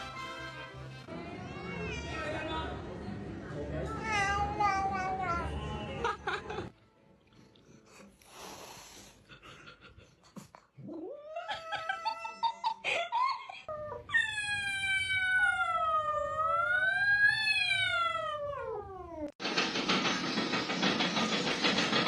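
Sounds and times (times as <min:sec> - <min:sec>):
cat yowling: 0:10.9 - 0:12.7, 0:13.9 - 0:19.3.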